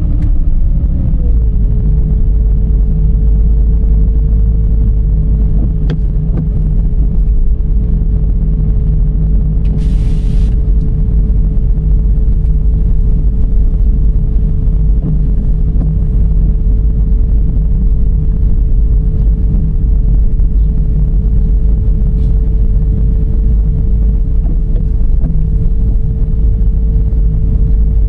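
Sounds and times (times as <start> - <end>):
car driving on road: 0.0 - 28.0
short hiss: 9.8 - 10.6.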